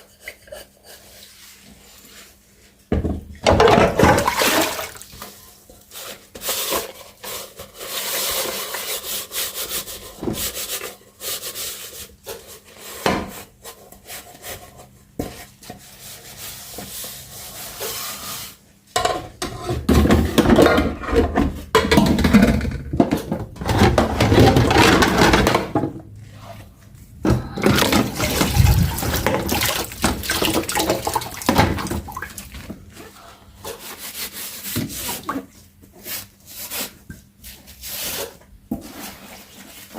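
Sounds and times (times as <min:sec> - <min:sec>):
tap water splashing over dishes: 0:27.6 - 0:32.7.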